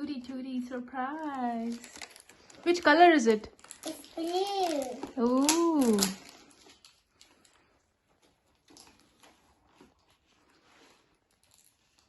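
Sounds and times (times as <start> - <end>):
faint soft rustles: 6.2 - 12.0.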